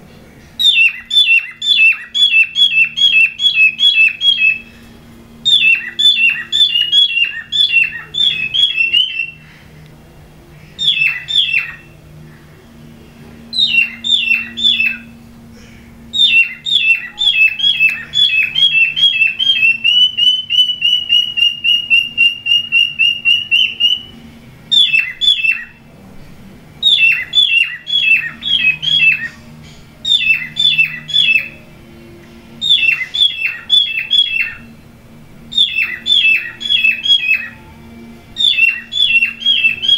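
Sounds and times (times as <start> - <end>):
cockatiels chirping: 0.6 - 9.4, 10.8 - 12.0, 13.5 - 15.2, 16.1 - 24.1, 24.7 - 25.8, 26.8 - 29.4, 30.0 - 31.6, 32.6 - 34.7, 35.5 - 37.6, 38.4 - 39.9.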